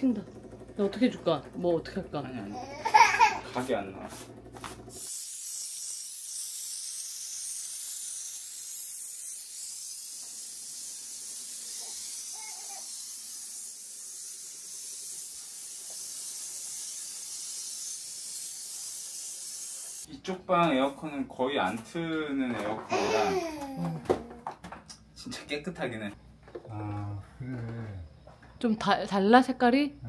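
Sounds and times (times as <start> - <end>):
steam cleaner hissing: 2.8 - 20.1.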